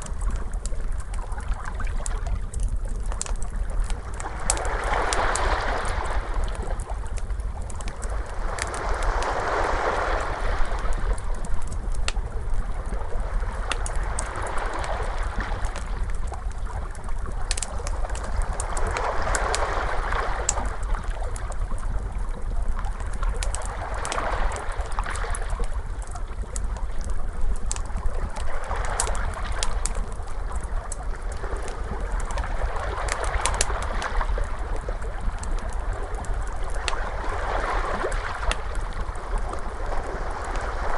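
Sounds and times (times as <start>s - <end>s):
low steady rumble: 0.0s - 40.9s
wood fire crackling: 0.0s - 40.9s
ocean waves washing in: 4.1s - 7.2s, 8.0s - 11.7s, 12.6s - 16.2s.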